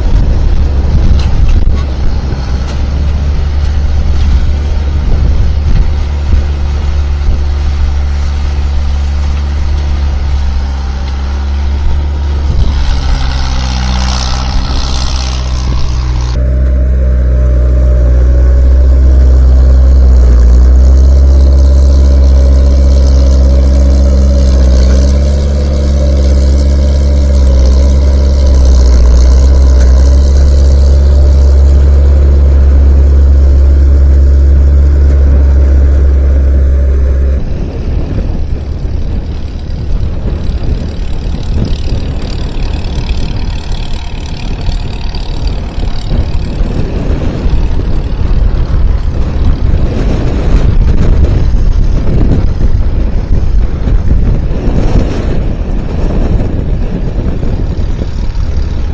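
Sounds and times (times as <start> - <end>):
skid steer engine running: 0.0 - 58.9.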